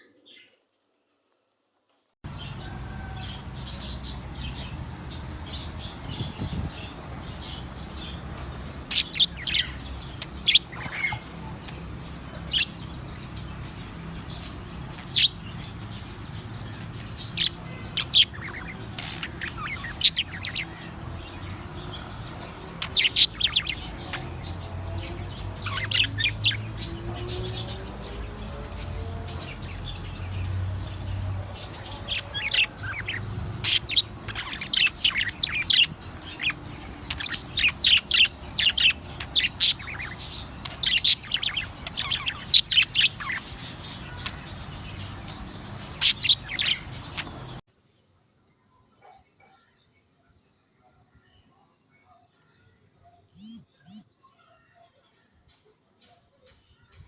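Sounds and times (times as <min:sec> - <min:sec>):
parrots chirping and squawking: 0:02.3 - 0:47.6.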